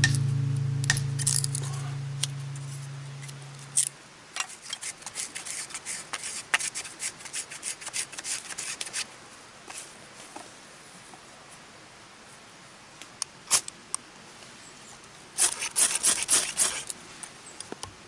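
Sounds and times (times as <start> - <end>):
acoustic guitar music: 0.0 - 3.8.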